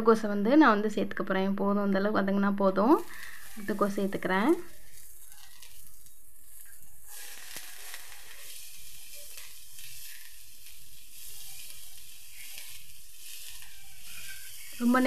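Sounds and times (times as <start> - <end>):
cabbage sizzling in hot oil: 2.9 - 15.0
metal spatula scraping pan: 3.0 - 15.0.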